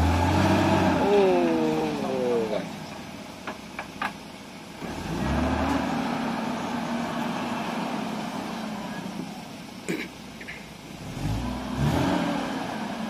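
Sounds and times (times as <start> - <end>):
off-road motorcycle engine revving: 0.0 - 2.9, 4.8 - 9.0, 9.9 - 13.0.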